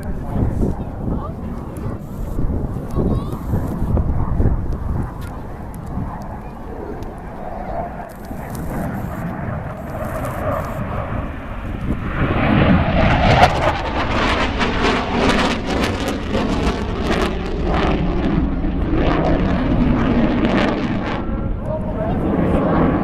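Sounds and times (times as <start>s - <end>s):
jet engine roar crackling: 0.0s - 23.0s.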